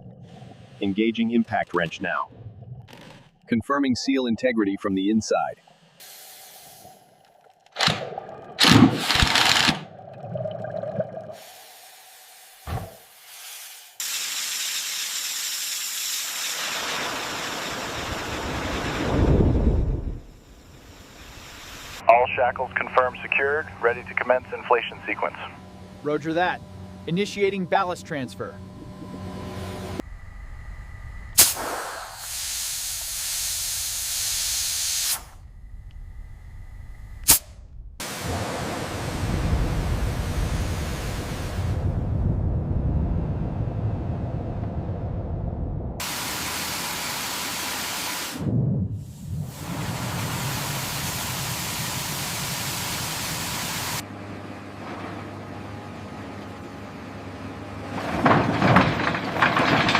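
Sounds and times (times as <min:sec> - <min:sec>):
compressed air hissing: 0:06.0 - 0:07.0, 0:11.4 - 0:16.3, 0:31.4 - 0:35.4, 0:37.2 - 0:37.5, 0:49.0 - 0:54.0
steady hiss: 0:06.0 - 0:07.0, 0:11.4 - 0:15.4
low hum: 0:17.7 - 0:32.2, 0:35.2 - 0:46.0
low rushing noise: 0:18.6 - 0:32.2.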